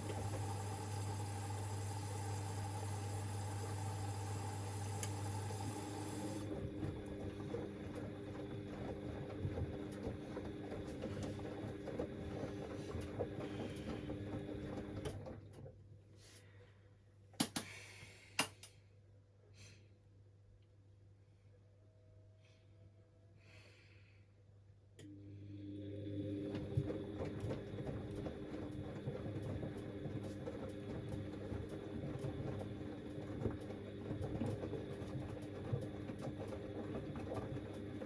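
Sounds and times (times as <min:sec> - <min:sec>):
washing machine running: 0:00.0 - 0:15.8, 0:25.1 - 0:38.0.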